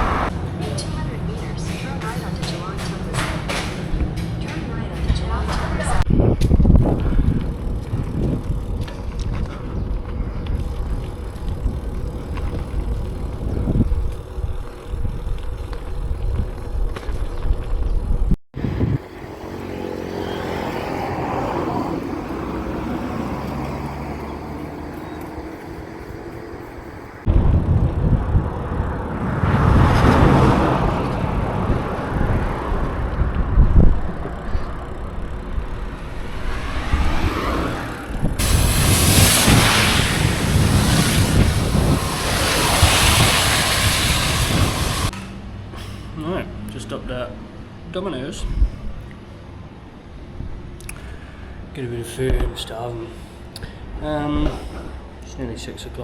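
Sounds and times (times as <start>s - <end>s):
vehicle passing: 0.0s - 15.2s, 18.6s - 45.7s
road traffic passing: 0.0s - 56.0s
wind rumble on microphone: 3.9s - 19.3s, 27.2s - 45.1s.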